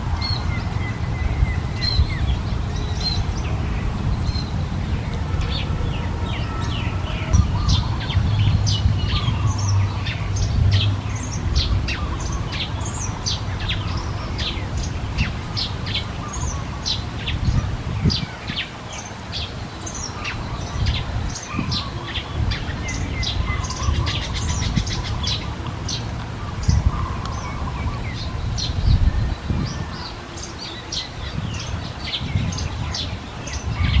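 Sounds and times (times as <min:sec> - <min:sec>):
steady low rumble: 0:00.0 - 0:18.6
small birds chirping: 0:00.0 - 0:34.0.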